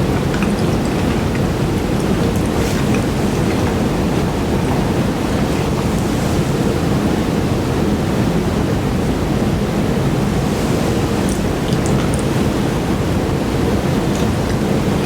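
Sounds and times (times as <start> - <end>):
close chewing mouth noise: 0.0 - 6.7.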